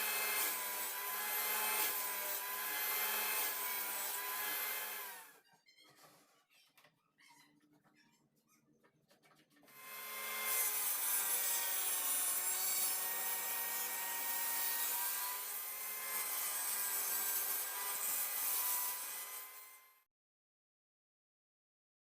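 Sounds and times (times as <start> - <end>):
table saw cutting wood: 0.0 - 5.4, 9.7 - 20.1.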